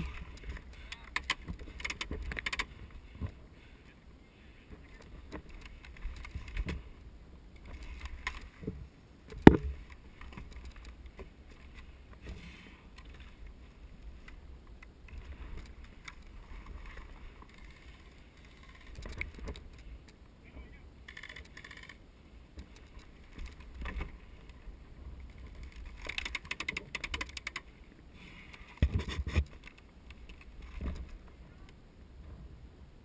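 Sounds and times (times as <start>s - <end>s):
handled microphone rumble: 0.0s - 20.8s
knocks and clicks: 9.4s - 9.8s.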